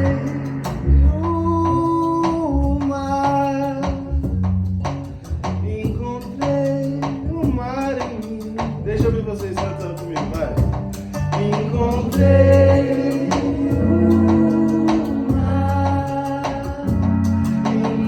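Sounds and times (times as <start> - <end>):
person singing: 0.0 - 4.3, 11.3 - 18.0
guitar: 0.0 - 18.0
sustained low bass line: 0.0 - 18.0.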